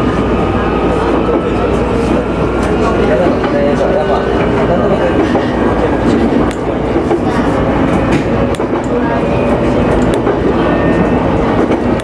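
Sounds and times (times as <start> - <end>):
train wheel and rail rumble: 0.0 - 12.0
sharp clicks of train wheels: 4.3 - 12.0.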